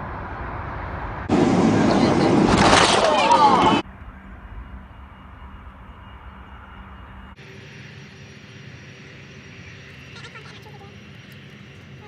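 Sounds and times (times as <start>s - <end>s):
distant jet engines: 0.0s - 12.0s.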